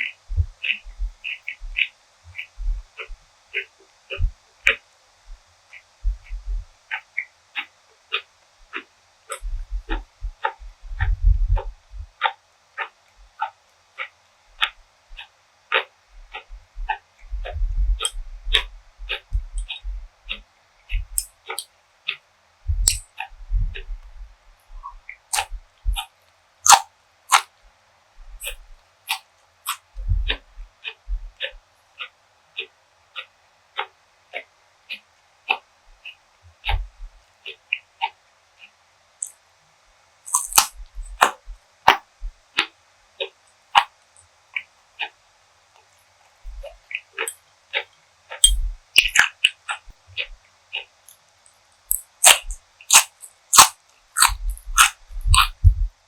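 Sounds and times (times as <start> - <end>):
person chewing food: 21.0 - 21.7, 22.7 - 27.5, 28.2 - 35.6, 40.3 - 42.0, 42.6 - 43.9, 45.8 - 51.0, 51.9 - 55.9
wet mouth clicks and smacks: 21.0 - 21.7, 22.8 - 23.0, 25.3 - 26.1, 26.7 - 27.5, 28.4 - 29.8, 40.3 - 42.0, 46.5 - 50.9, 51.9 - 55.8.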